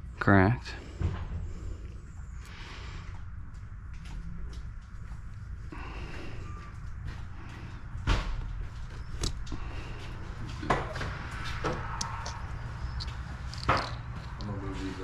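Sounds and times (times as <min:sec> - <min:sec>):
steady low hum: 0:00.0 - 0:15.0
parts knocking and clacking: 0:10.6 - 0:14.6.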